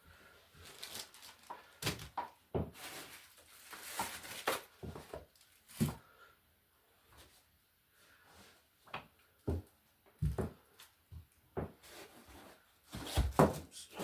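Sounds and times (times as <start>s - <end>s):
packaging rustling: 0.6s - 2.2s, 2.8s - 5.9s
items knocking and thumping: 1.8s - 3.1s, 8.9s - 12.0s, 12.9s - 13.7s.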